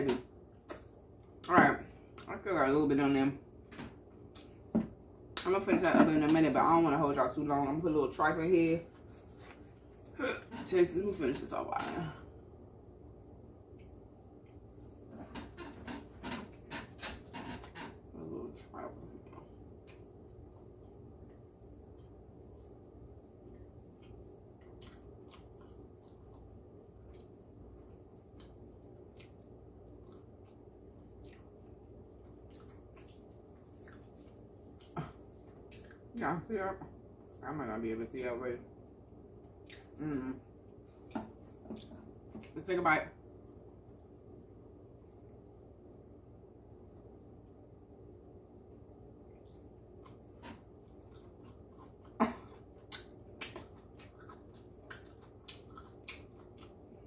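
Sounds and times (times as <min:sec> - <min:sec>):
low steady hum: 0:00.0 - 0:57.0
person chewing wetly: 0:19.2 - 0:36.1, 0:39.4 - 0:40.0, 0:46.6 - 0:57.0.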